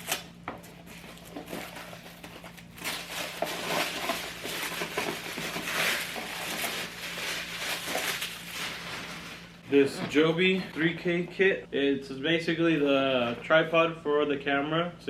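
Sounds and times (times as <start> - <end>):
packaging rustling and crinkling: 0.0 - 9.6.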